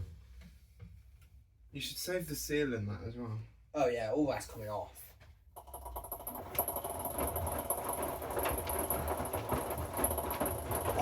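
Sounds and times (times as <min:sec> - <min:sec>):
washing machine drum rumbling: 0:05.6 - 0:11.0.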